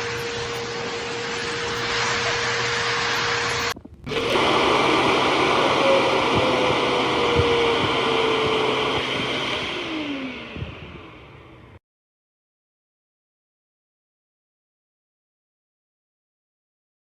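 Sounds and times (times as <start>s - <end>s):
dog dryer blowing air: 0.0s - 11.8s.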